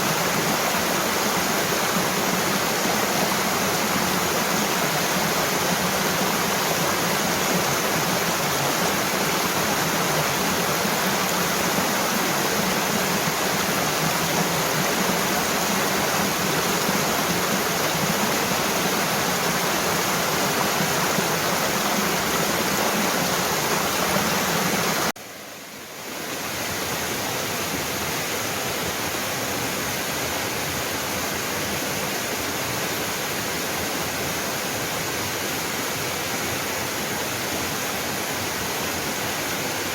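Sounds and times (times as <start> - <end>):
waterfall rushing: 0.0 - 25.2.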